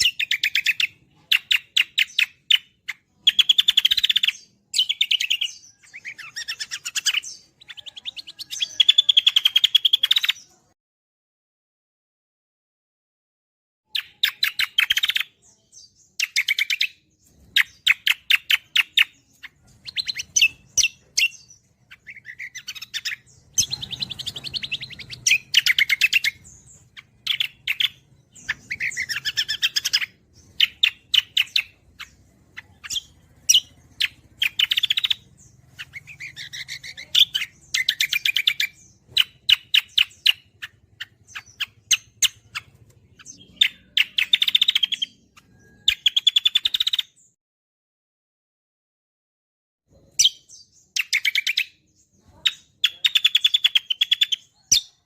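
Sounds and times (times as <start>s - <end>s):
bird chirping and trilling: 0.0s - 10.8s, 13.9s - 47.4s, 49.9s - 55.0s.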